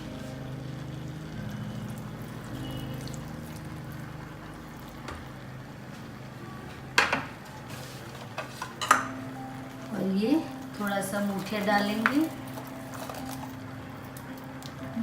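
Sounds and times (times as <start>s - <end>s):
water pouring into a pot: 1.8s - 5.0s.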